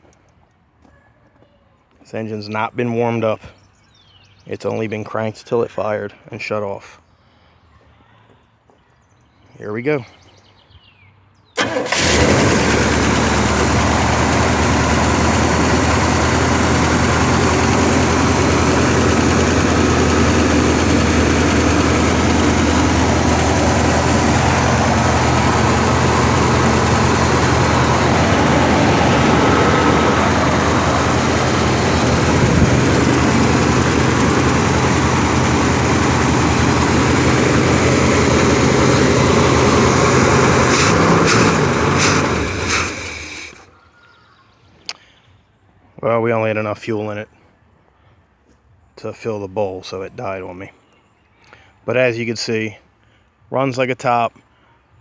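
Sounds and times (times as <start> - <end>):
engine starting and idling: 11.6 - 43.7.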